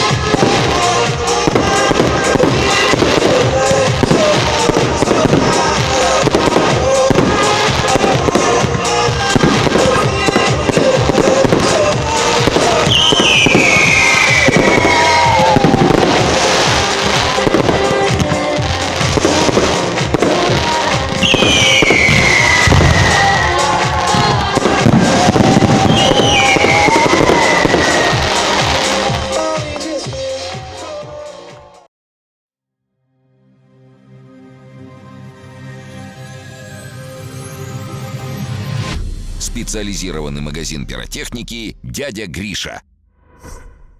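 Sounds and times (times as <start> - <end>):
fireworks bangs and crackle: 0.0 - 31.2
music playing: 0.0 - 31.9, 33.4 - 42.8
firework falling whistle: 12.7 - 16.8, 21.1 - 29.1.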